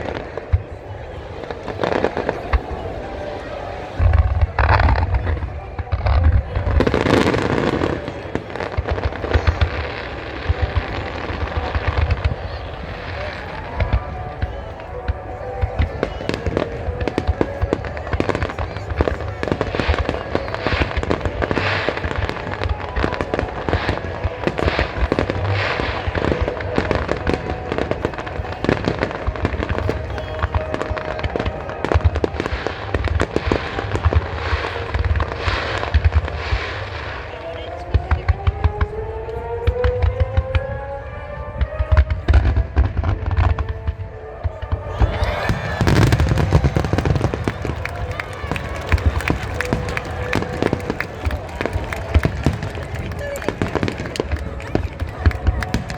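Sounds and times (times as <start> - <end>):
fireworks bursting: 0.0 - 37.3, 41.7 - 55.9
fireworks crackling: 0.0 - 55.9.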